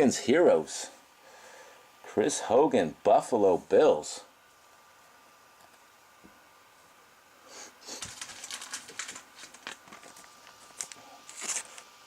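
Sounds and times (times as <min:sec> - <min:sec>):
trading cards being handled: 0:07.8 - 0:12.0.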